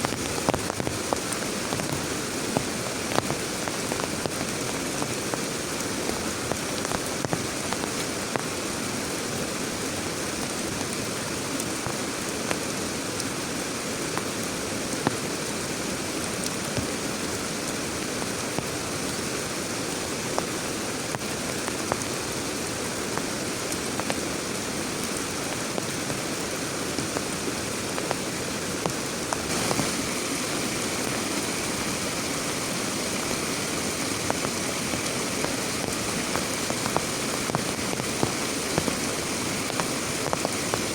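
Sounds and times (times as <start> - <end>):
heavy rain falling: 0.0 - 40.9
sharp raindrop hits: 28.8 - 40.9.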